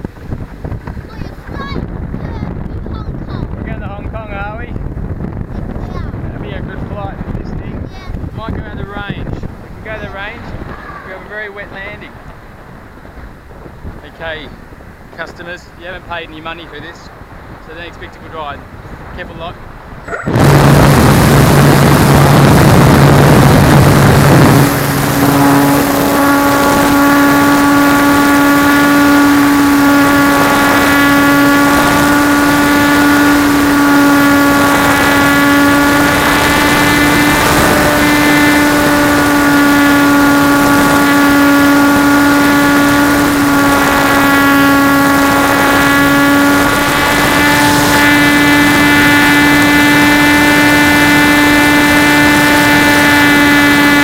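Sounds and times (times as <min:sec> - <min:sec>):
model plane motor whine: 0:23.9 - 0:54.0.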